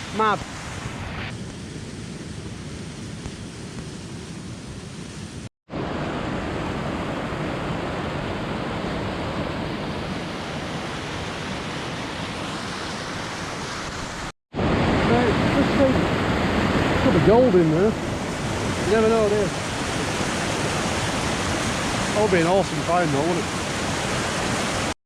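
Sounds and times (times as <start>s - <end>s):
waterfall rushing: 10.2s - 25.0s.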